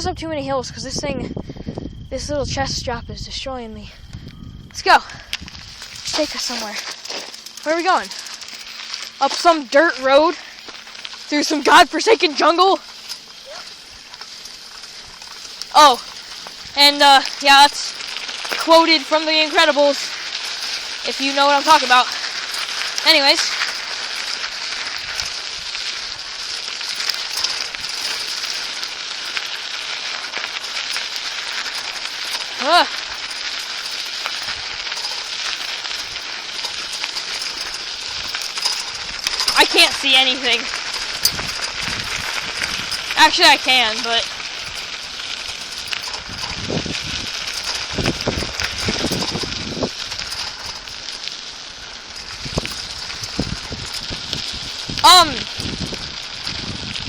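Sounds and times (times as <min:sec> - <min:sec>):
bicycle tyres on gravel: 0:00.0 - 0:57.0
faint clicks and rattles: 0:04.0 - 0:57.0
steady hiss: 0:04.0 - 0:57.0.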